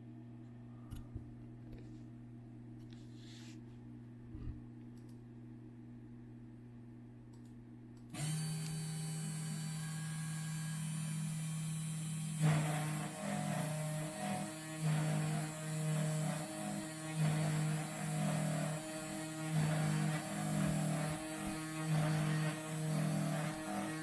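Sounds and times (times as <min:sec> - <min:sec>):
router spindle whine: 0:08.2 - 0:24.0.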